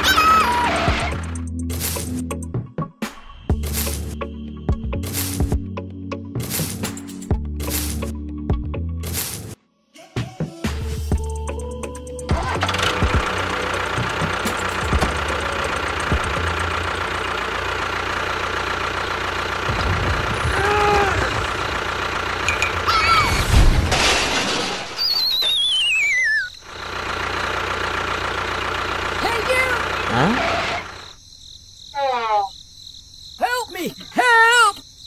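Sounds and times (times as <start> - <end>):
vehicle engine running: 0.0 - 2.6, 3.5 - 8.2, 11.2 - 23.2, 26.6 - 31.2
wavering downward whistle: 25.0 - 26.6
short squeaky calls: 25.0 - 26.7.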